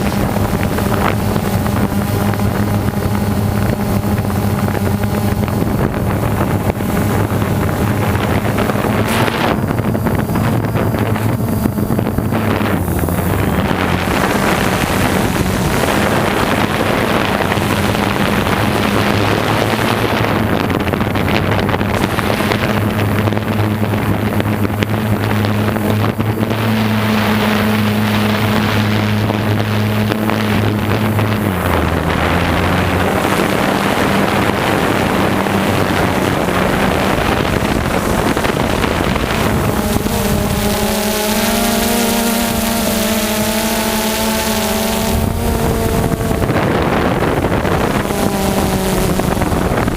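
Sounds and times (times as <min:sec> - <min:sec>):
small engine running: 0:00.0 - 0:49.9
wind noise on microphone: 0:00.0 - 0:49.9.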